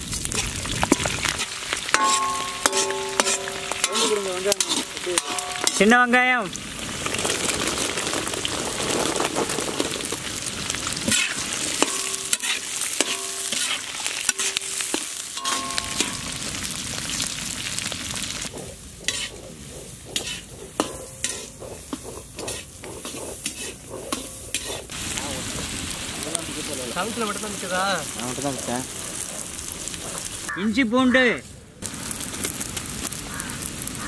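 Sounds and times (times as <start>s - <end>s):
shallots sizzling in hot oil: 0.0s - 30.6s, 31.8s - 34.0s
metal ladle squeaking and scraping: 1.9s - 5.8s, 11.1s - 16.4s, 18.4s - 24.9s.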